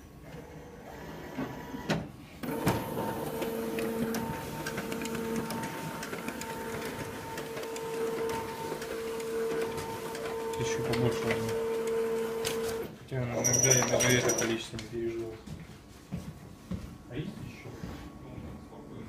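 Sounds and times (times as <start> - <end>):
copier running with squeaking whine: 0.4 - 14.7
copier clicking: 2.4 - 12.9.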